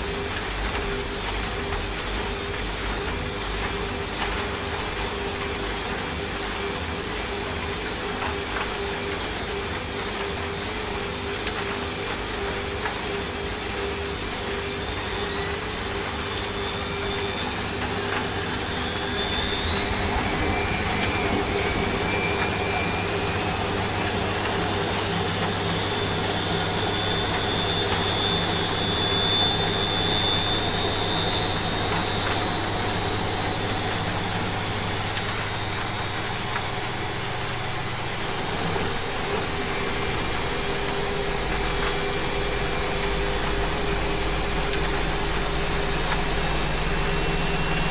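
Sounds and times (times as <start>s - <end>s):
washing machine spinning: 0.0s - 47.9s
rain hissing: 11.8s - 47.9s.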